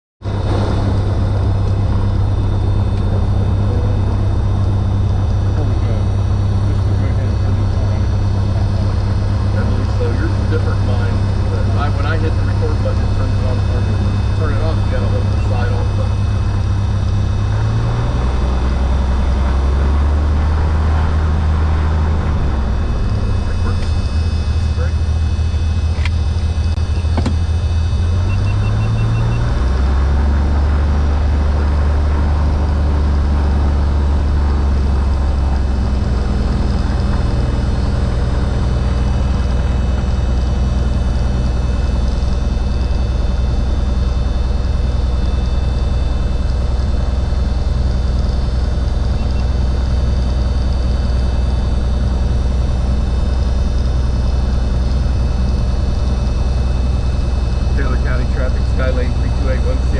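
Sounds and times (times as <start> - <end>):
propeller plane engine droning: 0.2 - 59.9.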